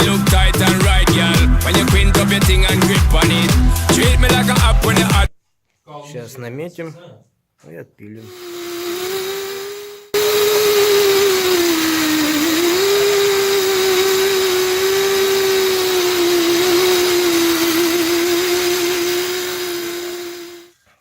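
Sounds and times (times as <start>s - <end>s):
angle grinder cutting metal spring: 8.3s - 20.7s.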